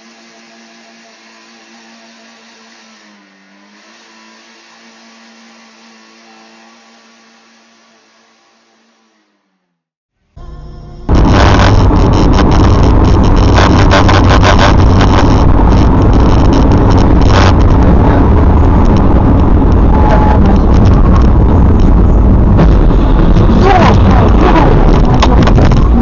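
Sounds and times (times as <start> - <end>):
vehicle driving rumble: 10.4 - 26.0.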